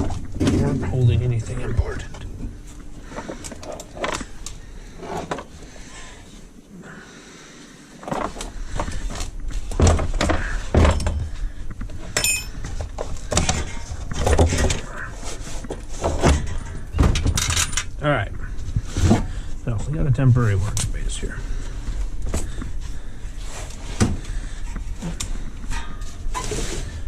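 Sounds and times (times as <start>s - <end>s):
metal parts clattering: 12.2s - 12.6s, 17.2s - 17.9s.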